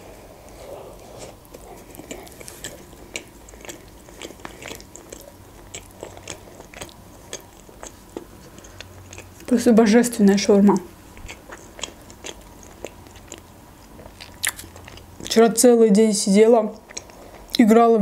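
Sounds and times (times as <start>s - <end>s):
chewing food: 0.4s - 15.5s, 16.7s - 17.6s
biting into a wrap: 1.1s - 9.5s.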